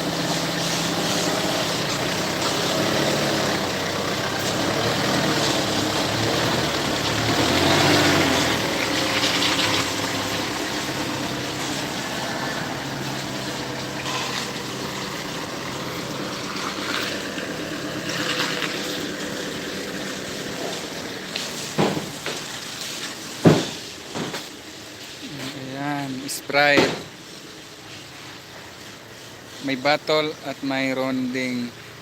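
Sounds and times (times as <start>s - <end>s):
steady hiss: 0.0s - 32.0s
truck engine idling: 0.0s - 32.0s
sharp knocks: 21.8s - 22.5s, 23.4s - 24.5s, 26.8s - 27.1s.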